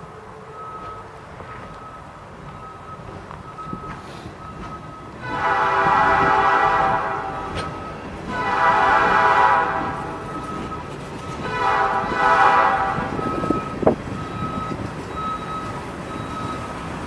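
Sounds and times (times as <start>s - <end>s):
backup alarm beeping: 0.5s - 8.8s, 10.0s - 16.9s
truck air horn blasts: 5.2s - 10.4s, 11.4s - 13.5s.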